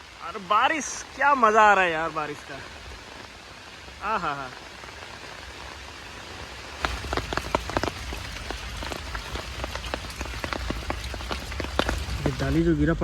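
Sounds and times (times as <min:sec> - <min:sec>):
heavy rain falling: 0:00.0 - 0:13.0
large drops splatting: 0:06.8 - 0:12.7.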